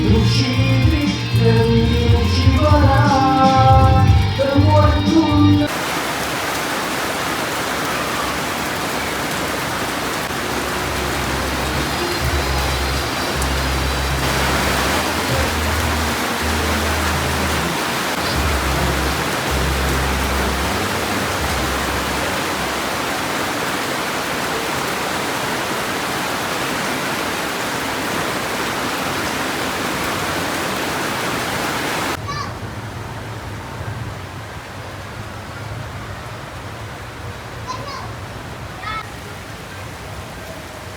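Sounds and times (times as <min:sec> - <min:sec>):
low bass background music: 0:00.0 - 0:05.7, 0:10.6 - 0:22.3
heavy rain pouring: 0:00.0 - 0:40.9.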